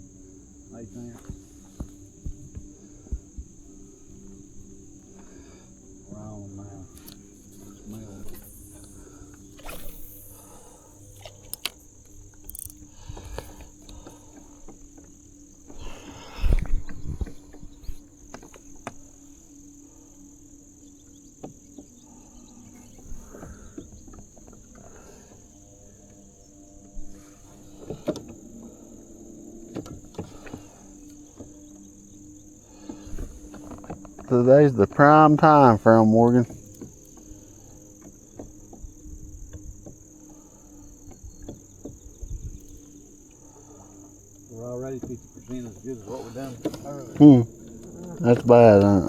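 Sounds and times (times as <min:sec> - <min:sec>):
faint low hum: 0:00.0 - 0:49.0
insects buzzing: 0:00.0 - 0:49.0.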